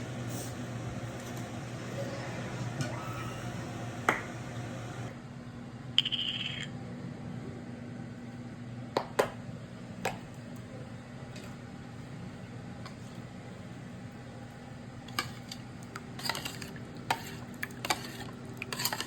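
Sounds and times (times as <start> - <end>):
steady low hum: 0.0 - 19.0
kitchen utensils and dishes clinking: 16.2 - 19.0.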